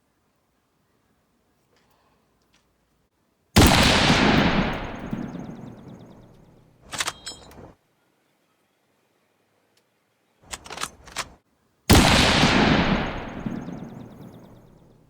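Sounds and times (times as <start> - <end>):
rifle shot with echo: 3.6 - 7.1, 11.9 - 15.0
sharp metallic clicks: 3.6 - 7.7, 10.5 - 11.4, 12.0 - 14.8.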